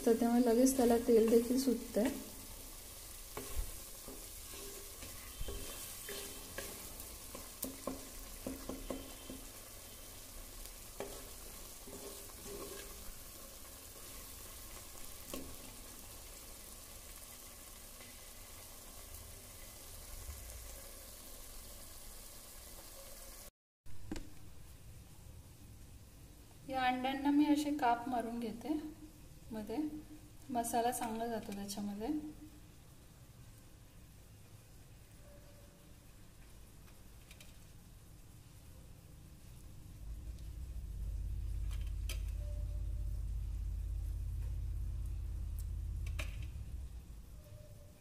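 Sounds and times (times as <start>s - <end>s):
paste sizzling in oil: 0.0s - 23.5s
wooden spatula scraping pot: 3.3s - 9.6s, 10.9s - 14.2s.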